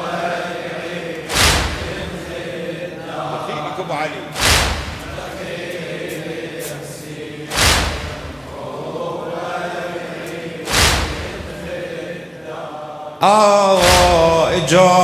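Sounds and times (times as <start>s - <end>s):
men chanting a low drone: 0.0s - 15.0s
heavy drum beats: 1.3s - 2.4s, 4.4s - 5.6s, 7.5s - 8.7s, 10.7s - 11.7s, 13.8s - 14.7s.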